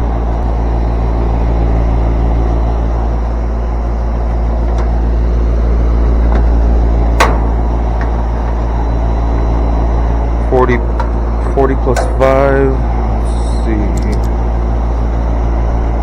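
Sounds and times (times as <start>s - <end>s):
air conditioner unit humming: 0.0s - 16.0s
sharp click: 13.9s - 14.4s.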